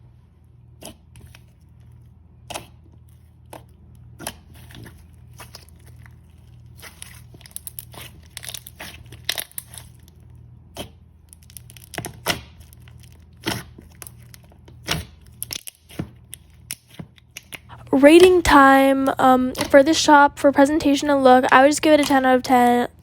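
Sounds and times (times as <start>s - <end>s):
slime squished by hand: 2.4s - 17.7s
steady low hum: 17.6s - 23.0s.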